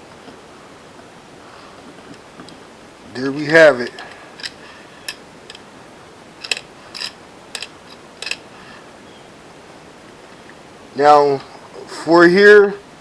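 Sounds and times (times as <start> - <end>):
small hard clicks of parts: 4.0 - 5.6, 6.4 - 8.4.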